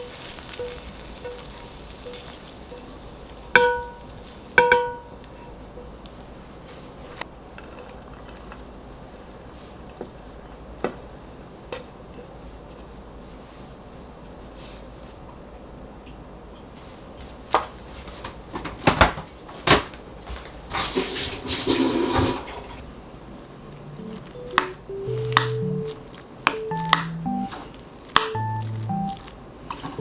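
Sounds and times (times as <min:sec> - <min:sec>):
dishes and utensils clinking: 0:00.0 - 0:05.6
soft background music: 0:23.9 - 0:27.7, 0:28.3 - 0:29.3.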